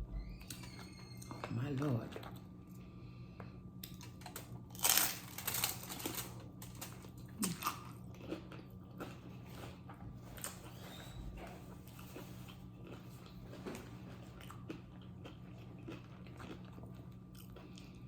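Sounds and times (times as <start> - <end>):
chewing with small crunches: 0.4 - 18.0
crunching bite of chips: 3.8 - 18.0.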